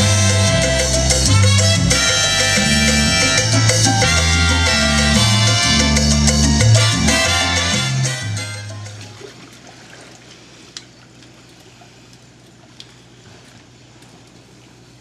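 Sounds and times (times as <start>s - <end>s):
low hum: 0.0s - 15.0s
faint water trickling and lapping: 8.6s - 15.0s.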